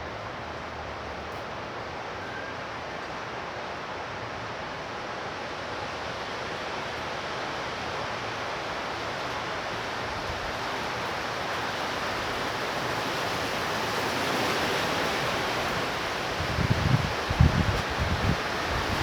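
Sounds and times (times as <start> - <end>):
heavy rain pouring: 8.2 - 19.0.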